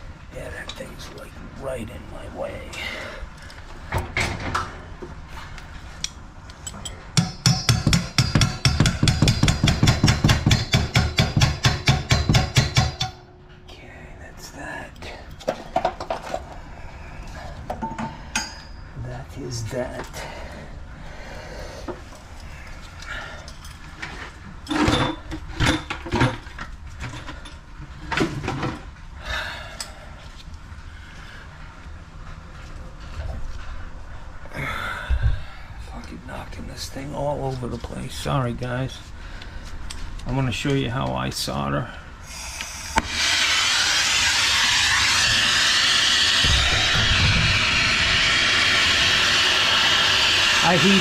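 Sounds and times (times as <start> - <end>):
rapid hammering: 7.2 - 13.2.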